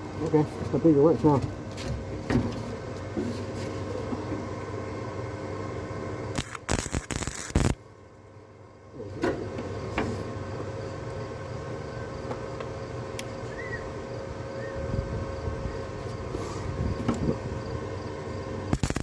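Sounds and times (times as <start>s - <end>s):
welding arc buzzing crackle: 6.3s - 7.9s, 18.7s - 19.0s.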